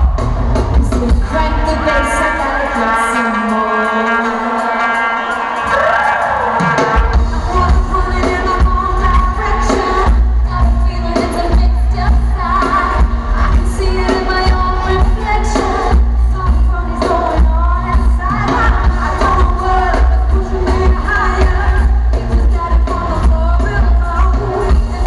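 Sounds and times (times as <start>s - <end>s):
faint crowd: 0.0s - 25.0s
loud live pop music: 0.0s - 25.0s
women singing: 6.9s - 25.0s.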